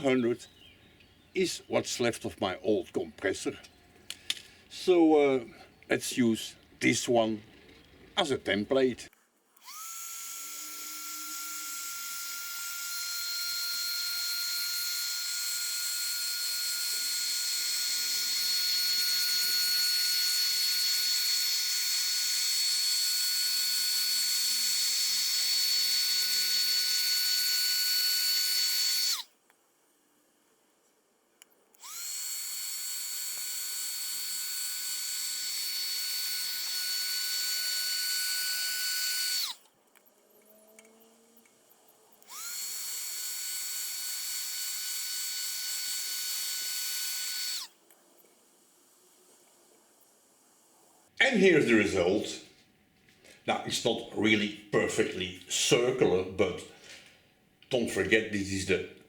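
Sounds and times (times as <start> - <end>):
heat gun whining: 9.6 - 29.3, 31.7 - 39.7, 42.2 - 47.8.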